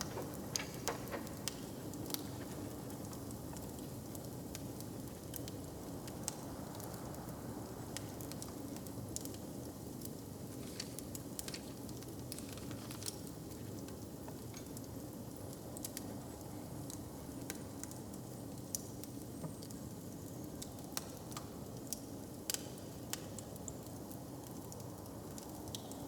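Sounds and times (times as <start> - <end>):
fire popping and snapping: 0.0 - 6.9, 7.9 - 19.2
low fire rumble: 0.0 - 14.4
wood fire crackling: 0.0 - 25.9.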